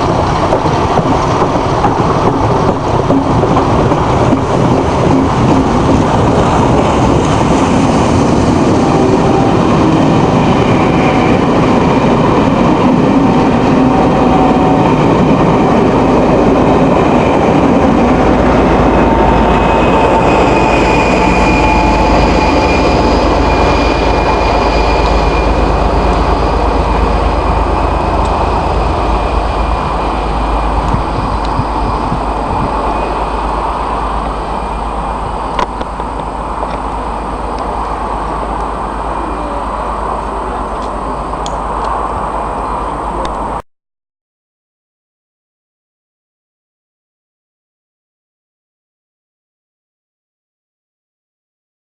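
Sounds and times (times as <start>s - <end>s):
diesel locomotive engine: 0.0s - 43.6s
turbocharger whistling: 19.4s - 27.2s.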